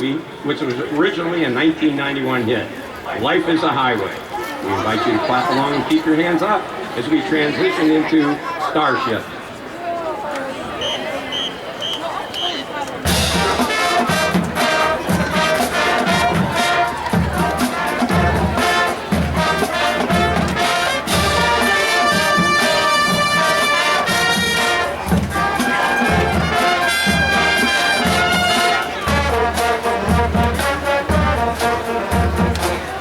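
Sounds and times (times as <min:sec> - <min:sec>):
brass section playing: 0:13.1 - 0:33.0
steady bass drum beat: 0:13.1 - 0:33.0.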